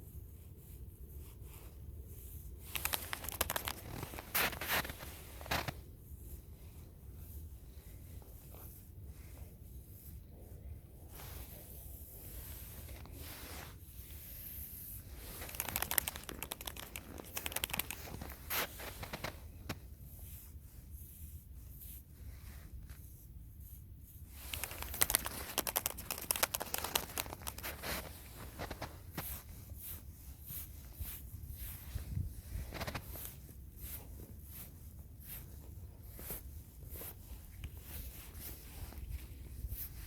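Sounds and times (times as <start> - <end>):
dry plant material crackling: 2.6 - 5.8, 15.2 - 19.3, 24.4 - 28.8.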